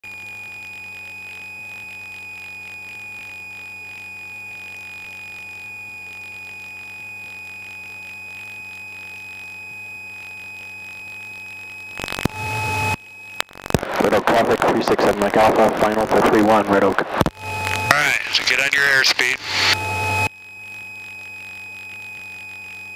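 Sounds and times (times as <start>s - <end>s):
high-pitched electronic tone: 11.9s - 16.0s, 17.3s - 20.3s
low hum: 11.9s - 20.3s.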